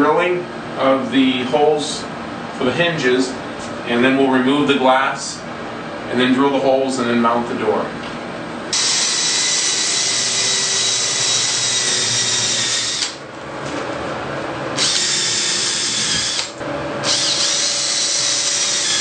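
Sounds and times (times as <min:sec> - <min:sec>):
power drill whining: 0:08.7 - 0:13.2, 0:14.8 - 0:19.0.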